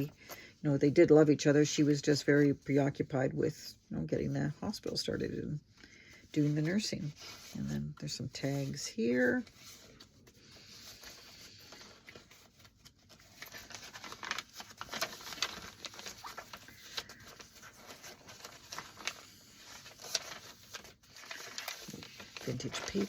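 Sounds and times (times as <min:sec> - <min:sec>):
paper pages rustling: 0:06.1 - 0:23.0.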